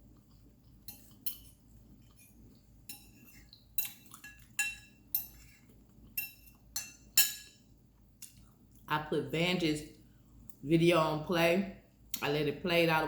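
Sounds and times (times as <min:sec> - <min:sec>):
metal utensils clinking on dishes: 0:00.9 - 0:05.5, 0:06.2 - 0:07.6.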